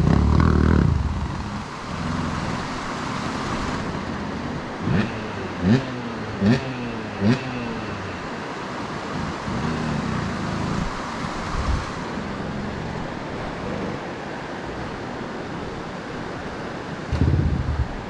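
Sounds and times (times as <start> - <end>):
motorcycle engine running: 0.0 - 8.3, 8.9 - 14.1
wind rushing over microphone: 8.6 - 18.0
wind gusts buffeting microphone: 8.8 - 18.0.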